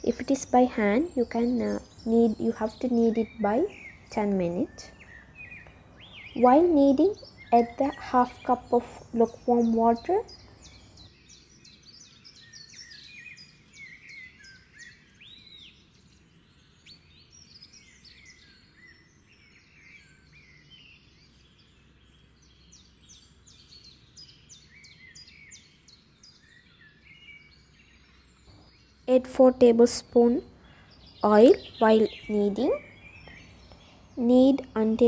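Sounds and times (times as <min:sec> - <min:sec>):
faint birdsong: 0:00.0 - 0:35.0.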